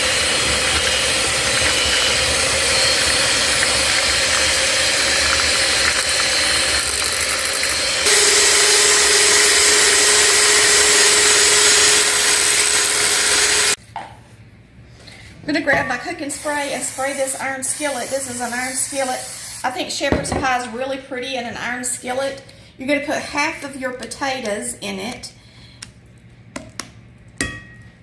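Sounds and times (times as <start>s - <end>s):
electric mixer running: 0.0s - 13.8s.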